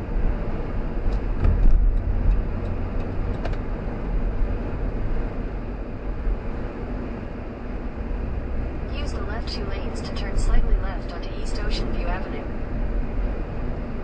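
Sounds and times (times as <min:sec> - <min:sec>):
car engine and tyre rumble: 0:00.0 - 0:14.0.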